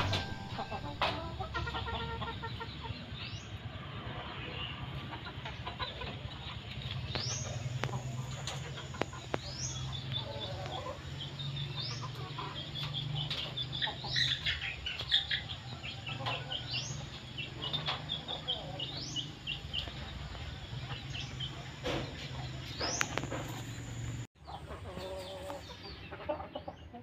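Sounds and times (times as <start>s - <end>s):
low steady hum: 0.0s - 3.3s
birds calling: 0.0s - 27.0s.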